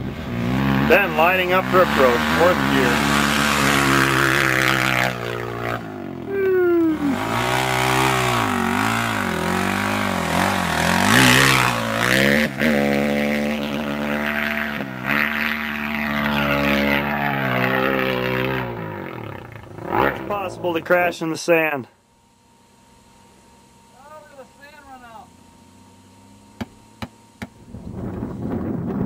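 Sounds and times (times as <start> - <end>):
motocross bike engine revving: 0.0 - 21.8
wind on microphone: 27.6 - 29.0.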